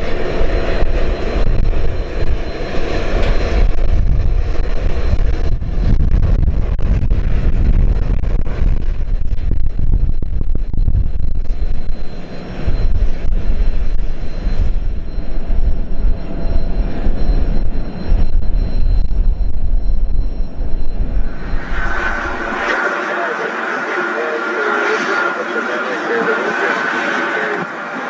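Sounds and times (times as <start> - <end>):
high engine whine: 0.0 - 28.0
jet engines rumbling: 0.0 - 28.0.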